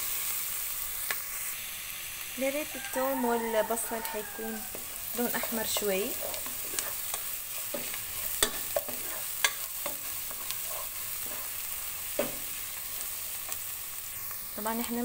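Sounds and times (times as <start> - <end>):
onions sizzling in oil: 0.0 - 15.0
spoon scraping a pan: 2.9 - 13.6.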